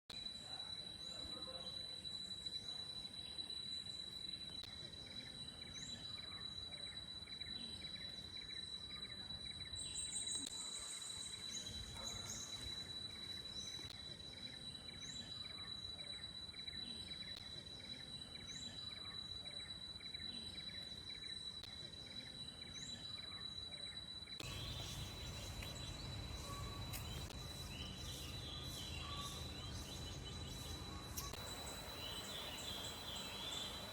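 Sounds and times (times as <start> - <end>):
high-pitched insect whine: 24.4 - 33.9.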